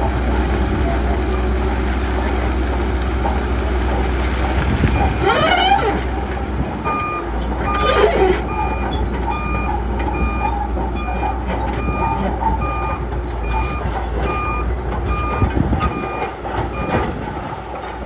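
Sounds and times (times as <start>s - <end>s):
diesel engine running: 0.0s - 18.0s
high-pitched squeals: 5.0s - 6.3s, 6.9s - 9.7s
reversing alarm beeping: 6.8s - 17.1s.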